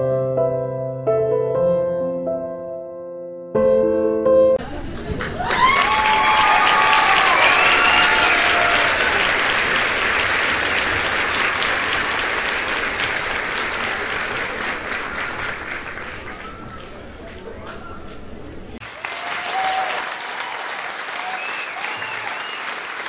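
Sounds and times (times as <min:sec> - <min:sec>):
voices cheering: 0:04.6 - 0:18.1, 0:18.8 - 0:23.0
crowd applause: 0:04.6 - 0:23.0.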